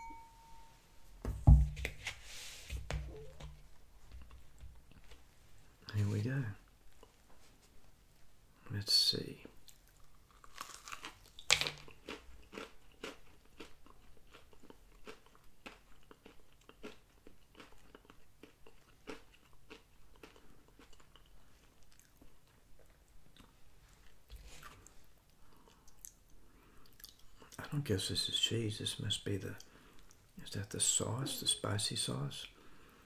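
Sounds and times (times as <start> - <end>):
crunchy chewing: 9.6 - 24.9
loud bite crunch: 10.3 - 21.2.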